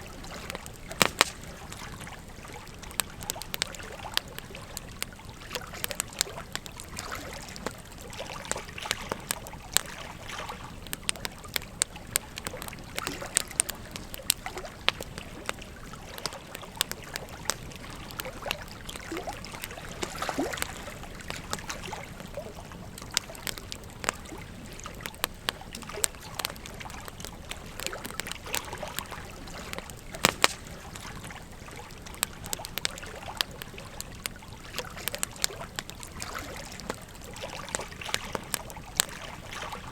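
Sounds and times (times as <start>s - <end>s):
wood fire crackling: 0.0s - 39.9s
river water flowing: 12.4s - 39.9s.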